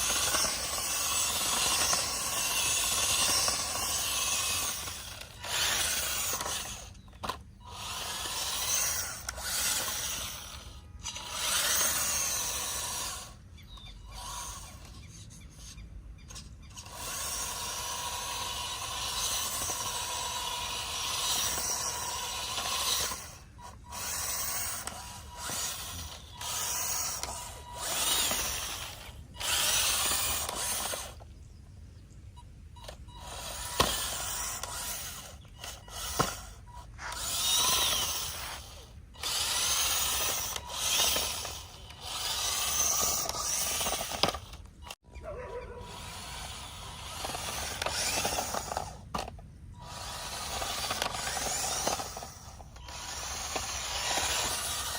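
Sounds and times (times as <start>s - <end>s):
small electric motor whirring: 0.0s - 31.6s, 32.2s - 54.9s.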